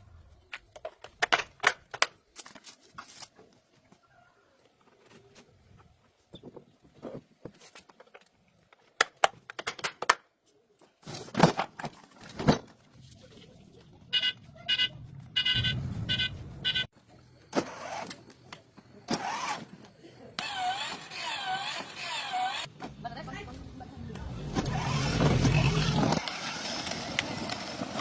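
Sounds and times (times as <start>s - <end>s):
short electronic beeps: 14.1s - 16.9s.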